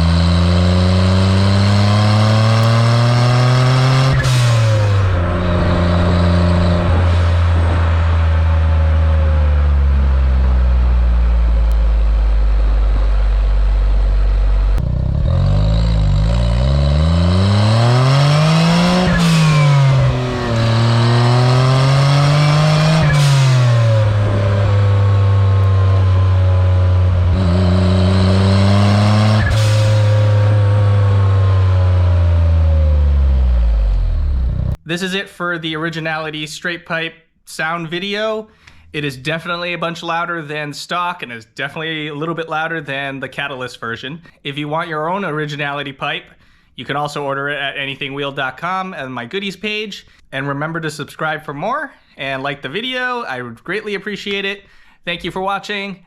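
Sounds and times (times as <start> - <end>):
loud car engine revving: 0.0 - 34.8.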